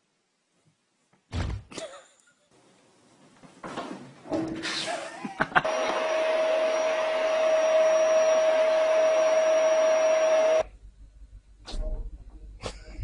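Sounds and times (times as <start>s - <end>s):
small electric motor whirring: 5.7s - 10.6s.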